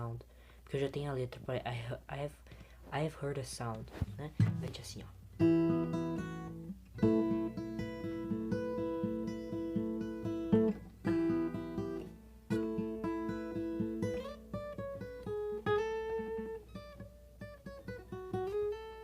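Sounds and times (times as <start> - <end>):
acoustic guitar playing: 4.2 - 19.0.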